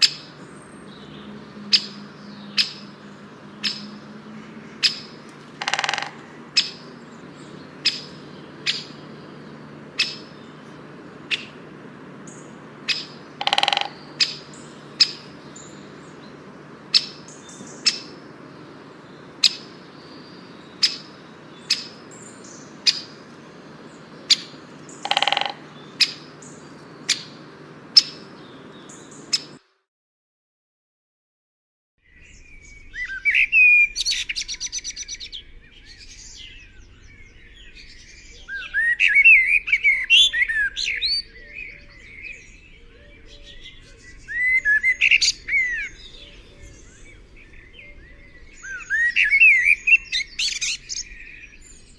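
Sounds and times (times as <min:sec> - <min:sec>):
bird calling: 0:00.0 - 0:29.6, 0:32.1 - 0:51.9
low steady hum: 0:00.0 - 0:29.6.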